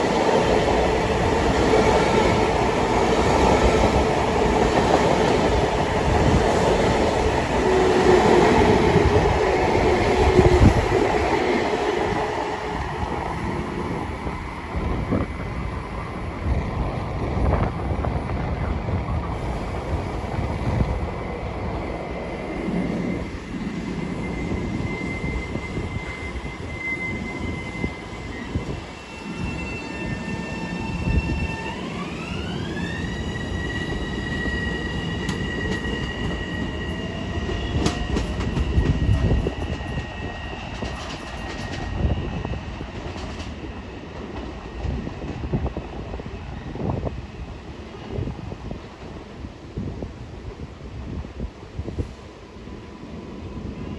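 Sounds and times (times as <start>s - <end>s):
train rumbling: 0.0s - 53.9s
rail clicks: 31.4s - 45.8s.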